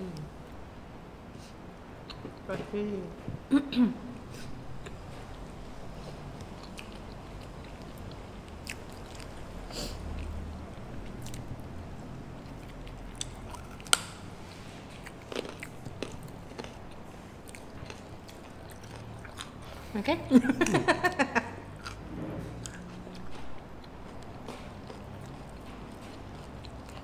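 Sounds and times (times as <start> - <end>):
chewing and biting food: 4.9 - 19.9, 21.7 - 27.0.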